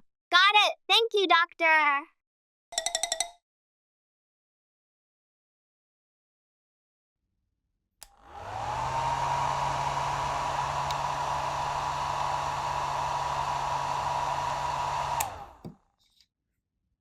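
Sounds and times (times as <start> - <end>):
electric fan motor whine: 8.0 - 15.8.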